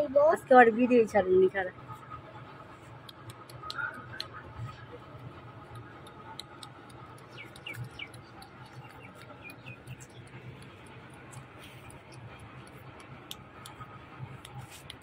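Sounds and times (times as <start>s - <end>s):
low steady hum: 0.0s - 15.0s
light ticks and clicks: 3.0s - 4.4s, 5.6s - 15.0s
small birds chirping: 5.7s - 12.8s.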